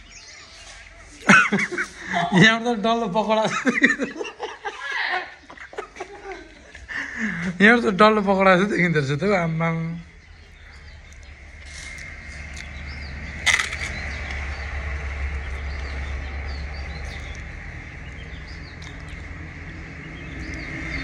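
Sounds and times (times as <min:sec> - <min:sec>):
small birds chirping: 0:00.0 - 0:21.0
low hum: 0:08.0 - 0:21.0.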